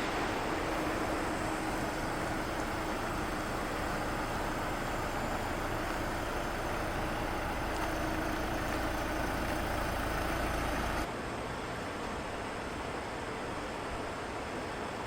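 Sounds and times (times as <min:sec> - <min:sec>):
steady hiss: 0:00.0 - 0:11.1
vehicle engine and road noise: 0:00.0 - 0:15.0.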